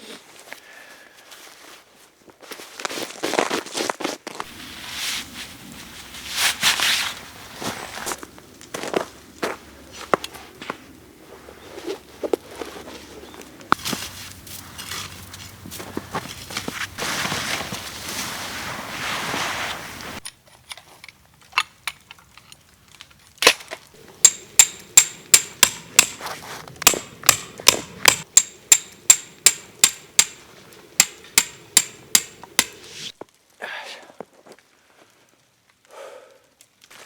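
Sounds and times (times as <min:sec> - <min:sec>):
rustling scuffing noise: 0:01.2 - 0:20.2, 0:26.2 - 0:27.2
sharp metallic strikes: 0:24.2 - 0:26.2, 0:26.9 - 0:33.1.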